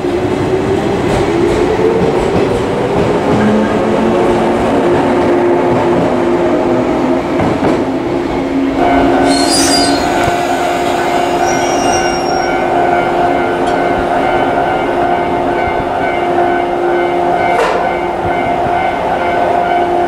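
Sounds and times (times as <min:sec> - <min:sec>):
train wheels rumbling: 0:00.0 - 0:16.4
wheel and brake squeal: 0:09.2 - 0:12.6.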